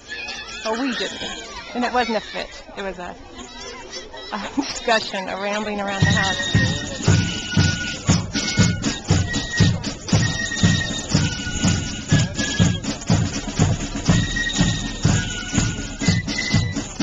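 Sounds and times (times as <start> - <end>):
live band music: 4.8 - 17.0.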